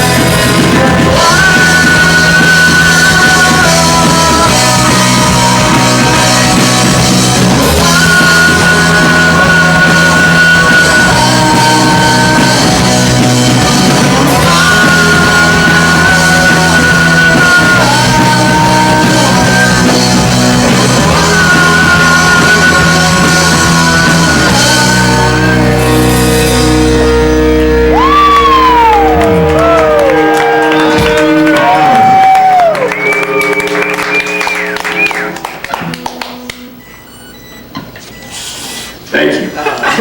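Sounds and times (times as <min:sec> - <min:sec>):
live rock band playing: 0:00.0 - 0:38.3.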